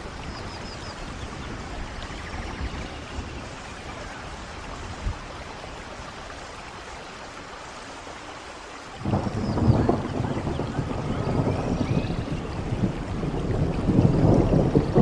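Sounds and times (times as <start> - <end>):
steady rain: 0.0 - 15.0
thunder rumbling: 9.0 - 15.0.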